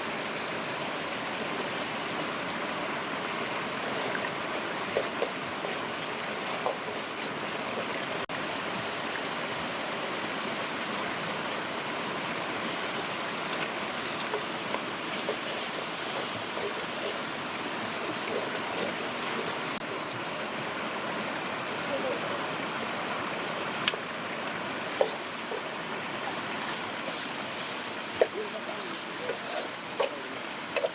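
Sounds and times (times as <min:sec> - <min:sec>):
waterfall and stream rushing: 0:00.0 - 0:30.9.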